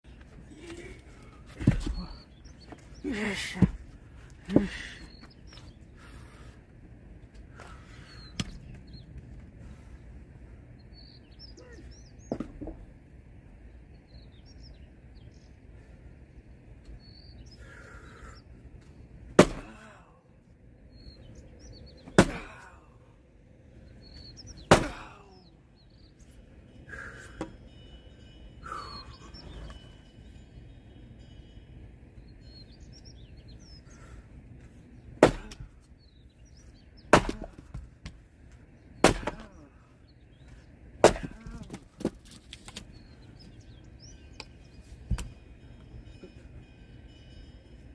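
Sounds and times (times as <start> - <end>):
axe chopping firewood: 1.6 - 2.1, 19.4 - 20.0, 22.0 - 22.7, 24.6 - 25.2, 35.2 - 35.7, 37.1 - 38.2, 39.0 - 39.7, 41.0 - 42.9.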